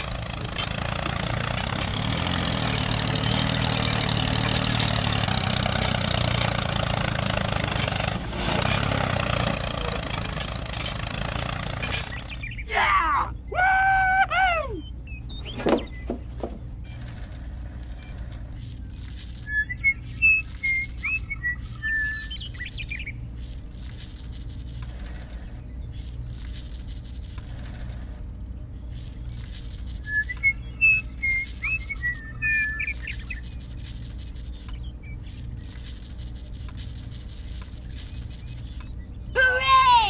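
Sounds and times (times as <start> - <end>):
steady low hum: 16.5 - 40.0
bird chirping whistles: 19.4 - 23.2, 30.0 - 33.6.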